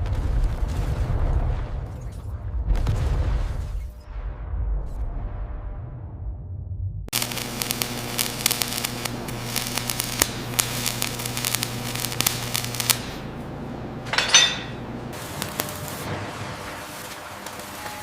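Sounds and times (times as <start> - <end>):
dense crackling: 7.1 - 13.4, 15.1 - 16.1
electrical hum: 7.1 - 18.0
hiss: 7.2 - 13.2, 15.2 - 18.0.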